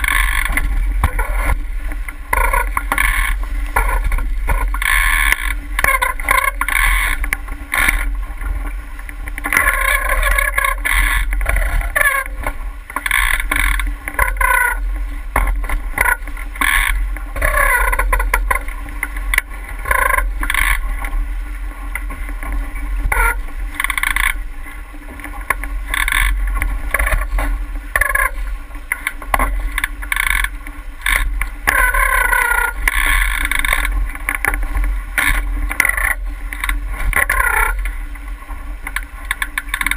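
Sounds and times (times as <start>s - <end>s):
steady low rumble: 0.0s - 39.9s
water splashing against hull: 0.0s - 39.9s.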